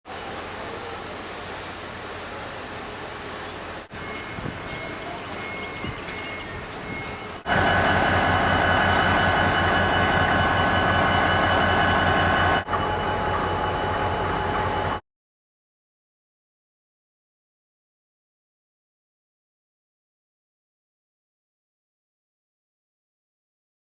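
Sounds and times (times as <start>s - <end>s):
steady whine: 0.2s - 15.0s
locomotive engine throbbing: 0.5s - 15.0s.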